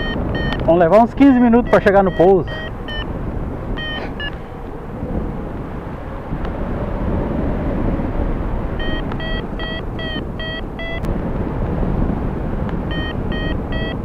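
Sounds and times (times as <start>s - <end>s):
variometer beeping: 0.0s - 4.4s, 8.8s - 11.1s, 12.9s - 14.0s
wind rushing over microphone: 0.0s - 14.0s.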